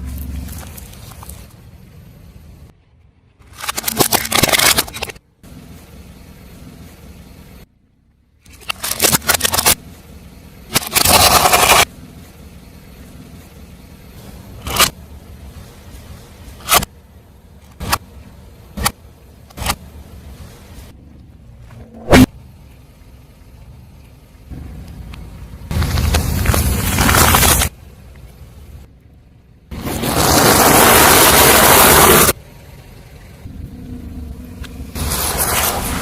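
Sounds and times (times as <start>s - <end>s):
car running: 0.0s - 36.0s
objects crunching under car tyre: 25.7s - 28.4s, 29.7s - 32.4s.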